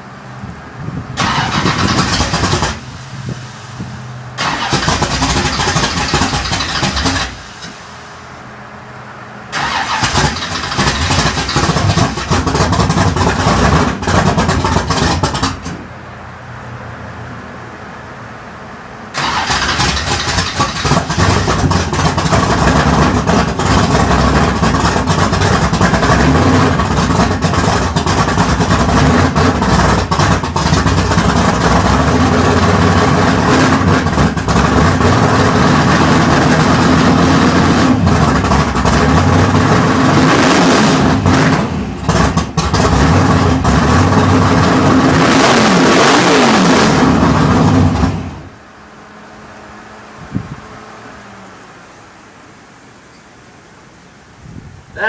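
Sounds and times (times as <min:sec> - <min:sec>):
car engine running loud: 0:00.0 - 0:53.1.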